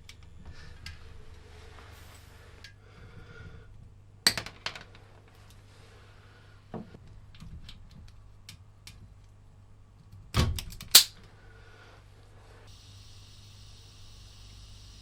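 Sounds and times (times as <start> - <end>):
steady high hiss: 0.5 - 2.8, 11.5 - 15.0.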